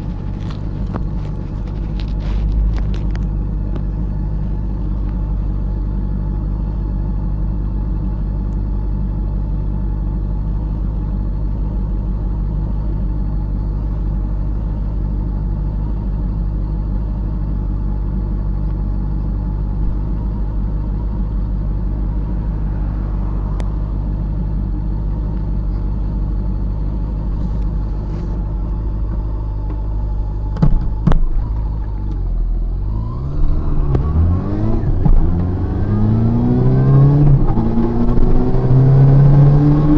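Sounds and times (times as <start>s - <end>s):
motorcycle engine idling: 0.0s - 32.7s
motorcycle engine revving: 32.7s - 39.9s.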